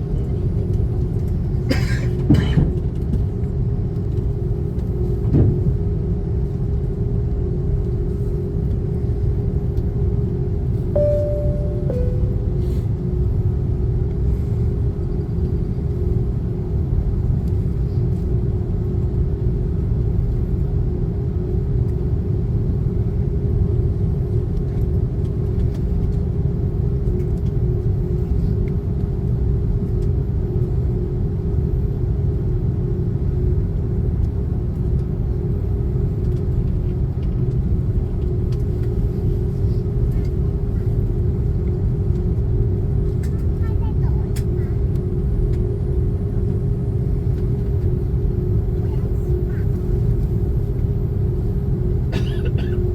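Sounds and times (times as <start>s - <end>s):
jet engine cabin rumble: 0.0s - 10.0s, 11.0s - 12.9s, 27.3s - 52.9s
constant hum: 34.8s - 52.9s.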